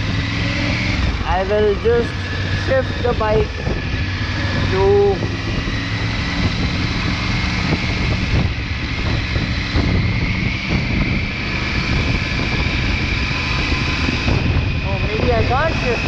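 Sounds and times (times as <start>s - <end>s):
motorcycle engine running: 0.0s - 16.0s
rushing wind noise: 0.0s - 16.0s.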